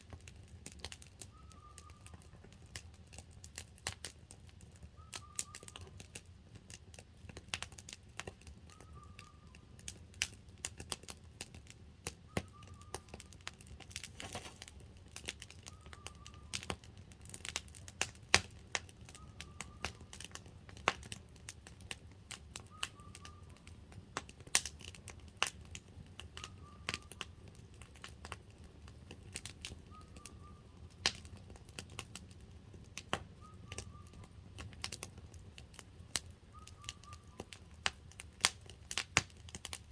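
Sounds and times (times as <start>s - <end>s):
campfire crackling and popping: 0.0s - 39.9s
bird chirping: 1.3s - 2.3s, 8.7s - 9.6s, 12.3s - 13.2s, 29.8s - 30.8s, 33.4s - 34.3s, 36.5s - 37.5s.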